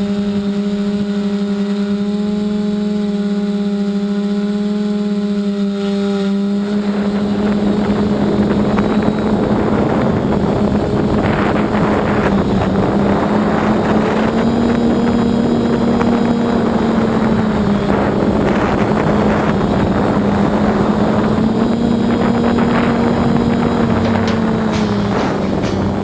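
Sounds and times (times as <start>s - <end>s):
drone propellers humming: 0.0s - 26.0s
wind buffeting microphone: 6.6s - 26.0s.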